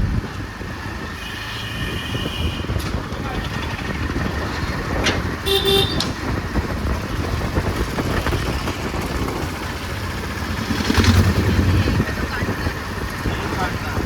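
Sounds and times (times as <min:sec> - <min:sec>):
road traffic rumble: 0:00.0 - 0:14.0
vehicle horn toot: 0:01.2 - 0:02.9, 0:05.4 - 0:06.2.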